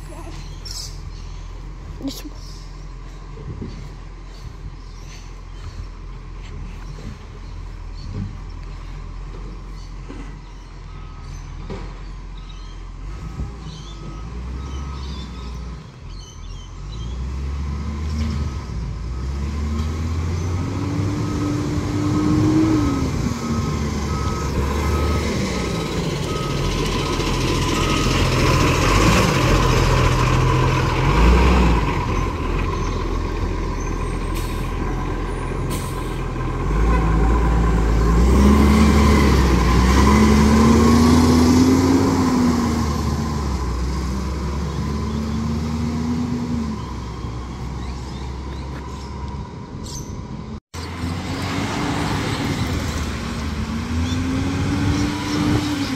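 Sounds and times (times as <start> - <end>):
garbage truck engine revving: 16.8 - 47.8, 50.8 - 55.9
reversing beeper: 22.2 - 29.4.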